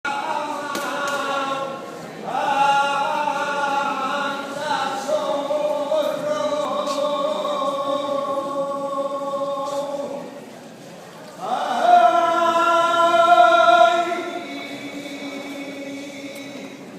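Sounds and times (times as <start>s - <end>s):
person singing unaccompanied: 0.0s - 10.3s, 11.4s - 16.9s.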